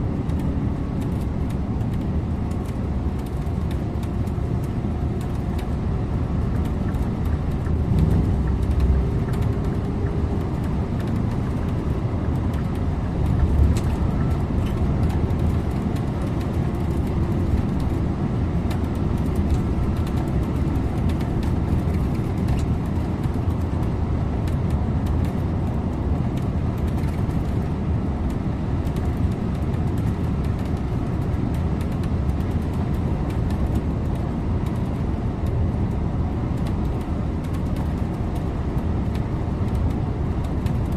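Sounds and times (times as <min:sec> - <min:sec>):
bus engine drone: 0:00.0 - 0:40.9
low bumps: 0:07.4 - 0:11.4.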